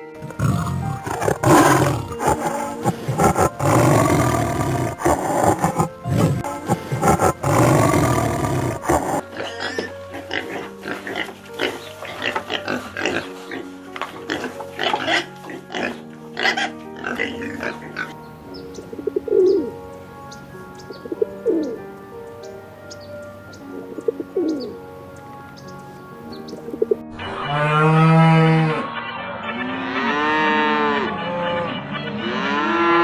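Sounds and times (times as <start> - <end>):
pigeon cooing: 0.0 - 9.6, 18.7 - 19.8, 20.9 - 21.8, 23.5 - 24.8, 26.4 - 27.0
background music: 0.0 - 33.0
pig grunting and squealing: 0.2 - 13.4.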